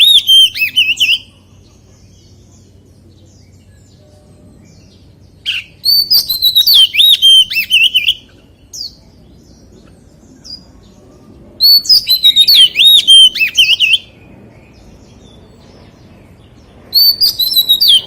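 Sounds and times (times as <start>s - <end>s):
bird singing whistled notes: 0.0s - 18.0s.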